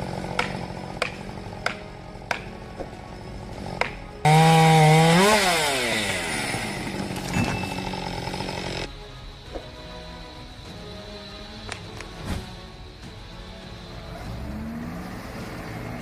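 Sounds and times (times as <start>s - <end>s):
chainsaw engine running: 0.0s - 1.6s, 3.6s - 8.9s.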